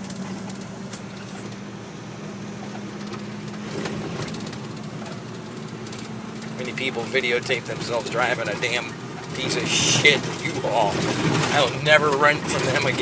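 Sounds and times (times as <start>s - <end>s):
road noise: 0.0s - 13.0s
truck engine drone: 0.0s - 13.0s
light rattles and clicks: 2.7s - 13.0s.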